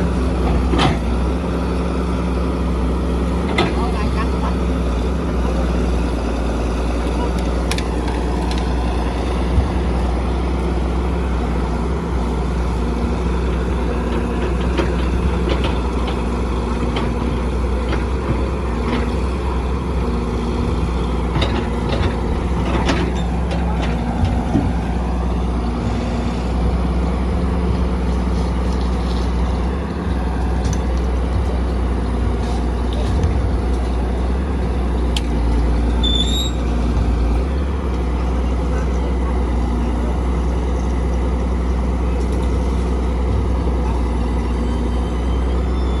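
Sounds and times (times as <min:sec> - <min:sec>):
diesel construction machinery: 0:00.0 - 0:46.0.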